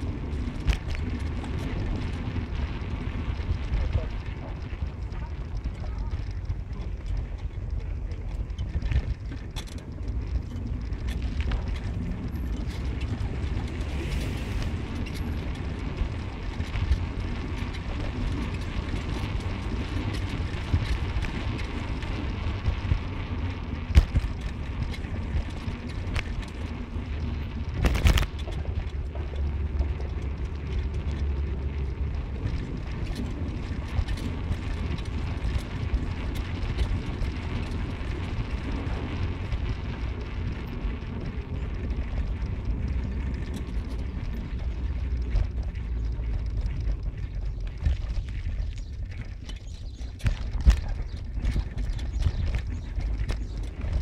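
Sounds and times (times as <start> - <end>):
car road and engine rumble: 0.0 - 54.0
wind noise: 0.0 - 54.0.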